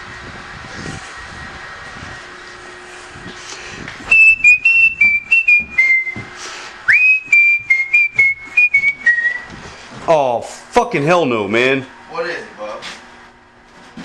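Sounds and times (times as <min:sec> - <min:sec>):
person whistling a tune: 0:04.1 - 0:06.3, 0:06.9 - 0:09.5.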